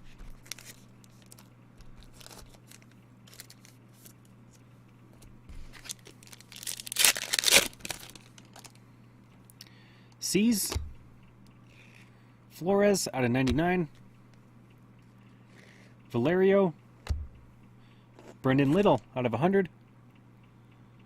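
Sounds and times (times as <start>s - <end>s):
cards being handled: 0.0s - 4.6s, 5.5s - 8.8s
wrapper tearing with crinkling rip: 0.3s - 4.1s, 5.7s - 8.8s.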